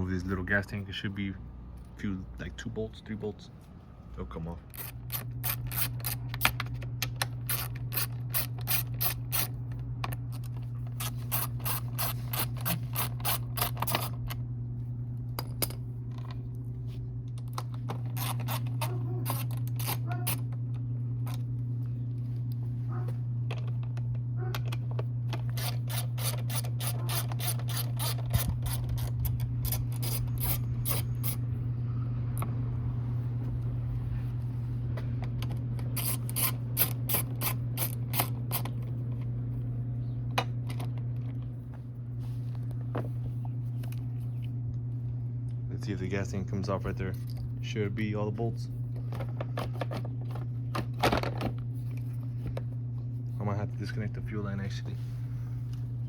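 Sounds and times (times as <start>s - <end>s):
steady low hum: 0.0s - 56.0s
socket ratchet clicking: 4.7s - 9.5s, 10.3s - 14.2s, 25.4s - 31.4s, 35.9s - 38.7s.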